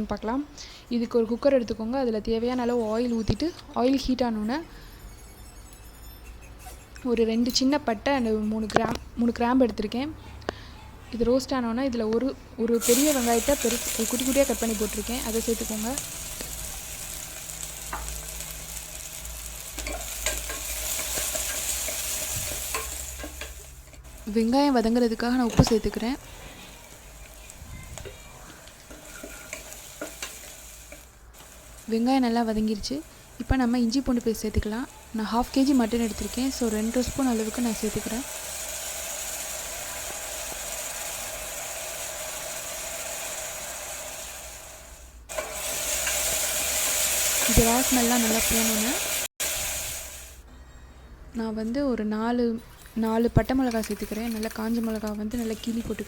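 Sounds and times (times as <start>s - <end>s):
spoon scraping pot: 6.1s - 9.1s, 25.2s - 31.8s
onion sizzling in oil: 12.7s - 50.4s, 53.6s - 56.0s.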